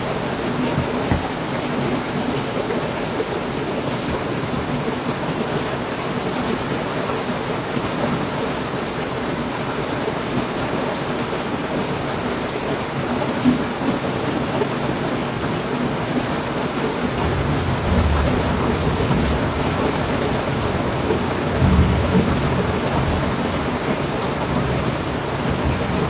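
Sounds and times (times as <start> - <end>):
heavy rain falling: 0.0 - 26.0
low thunder rumble: 17.2 - 26.0.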